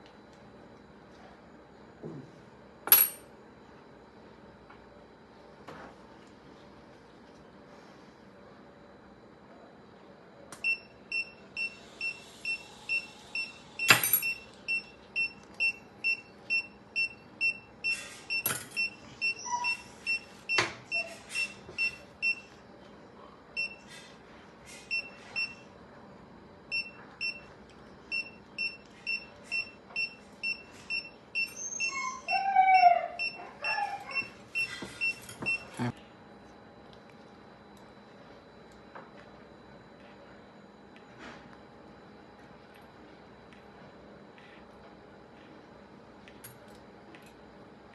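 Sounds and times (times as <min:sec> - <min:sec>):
monitor beeping: 0:10.6 - 0:22.5, 0:24.9 - 0:25.7, 0:26.7 - 0:27.5, 0:28.1 - 0:35.7.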